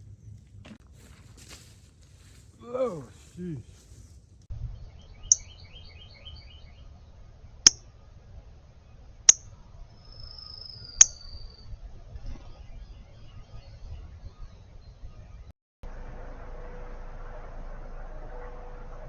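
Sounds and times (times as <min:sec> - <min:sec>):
small bird chip calls: 0:09.3 - 0:11.7
thin drawn-out whistle: 0:09.9 - 0:11.7.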